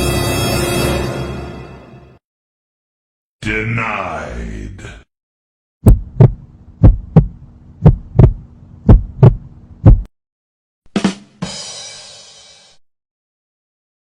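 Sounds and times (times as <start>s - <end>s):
heartbeat thumps: 5.8s - 10.1s
low hum: 5.9s - 10.1s.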